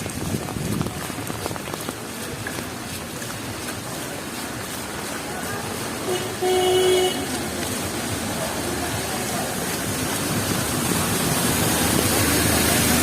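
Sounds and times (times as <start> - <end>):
traffic on wet streets: 0.0 - 13.0
heavy rain hiss: 4.1 - 13.0.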